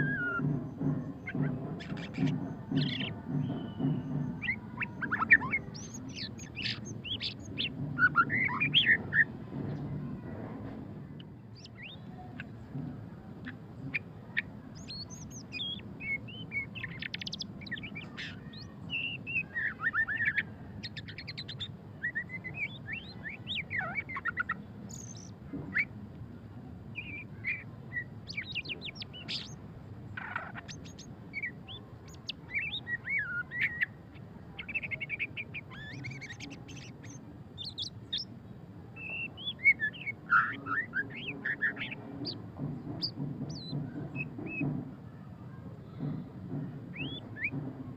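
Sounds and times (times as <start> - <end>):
bird singing trills and whistles: 0.0 - 9.3, 13.4 - 25.9, 27.0 - 29.6, 30.2 - 38.3, 39.0 - 42.4, 43.0 - 44.7, 46.9 - 47.6.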